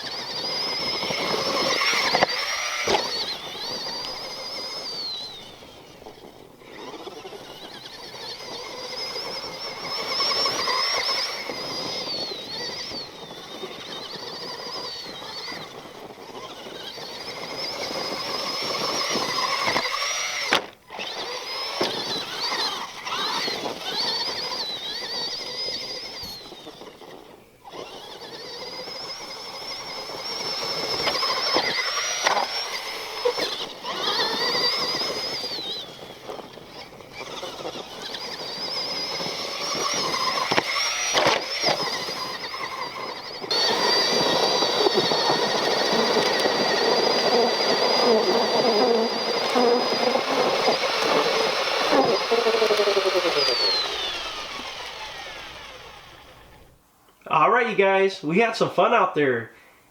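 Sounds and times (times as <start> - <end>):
rc truck motor whining: 0.0 - 57.5
rc truck driving noise: 0.0 - 58.0.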